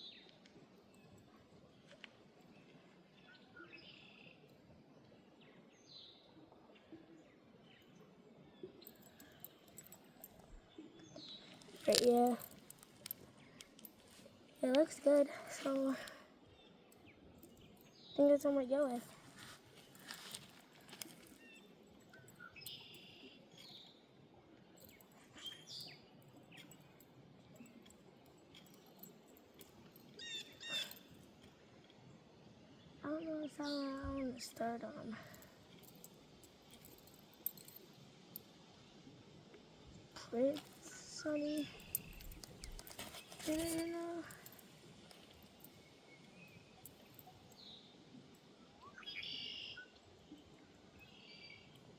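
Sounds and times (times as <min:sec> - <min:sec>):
faint bird chirps: 0:21.2 - 0:24.1, 0:24.9 - 0:29.1, 0:30.0 - 0:31.2, 0:45.3 - 0:51.9
birds chirping and whistling: 0:48.9 - 0:49.9.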